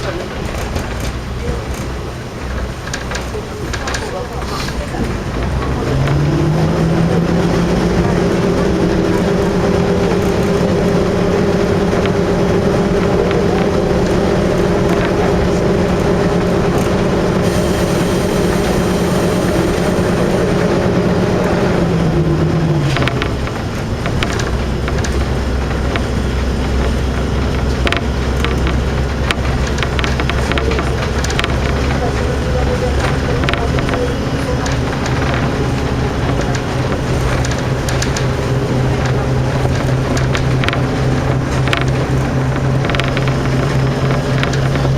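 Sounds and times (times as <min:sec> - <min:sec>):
diesel railcar engine droning: 0:00.0 - 0:44.9
wheels rumbling on rail: 0:00.0 - 0:44.9
clicks and rattles: 0:34.6 - 0:44.9.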